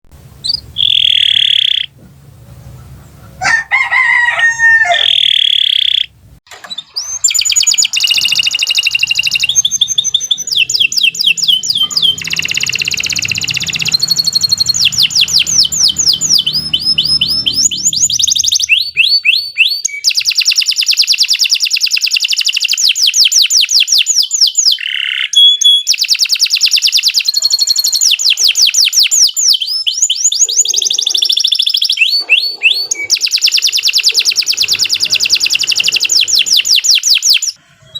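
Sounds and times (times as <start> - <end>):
canary singing rapid trills: 0.4 - 2.0, 5.0 - 6.1, 6.8 - 37.9
canary wavering call: 2.7 - 6.1, 7.0 - 19.8, 27.3 - 29.6, 30.3 - 37.9.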